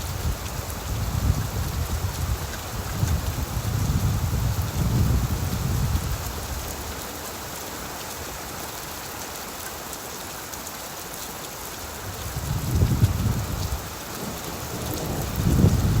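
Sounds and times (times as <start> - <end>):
rain falling on leaves: 0.0 - 16.0
distant thunder rumble: 12.7 - 16.0.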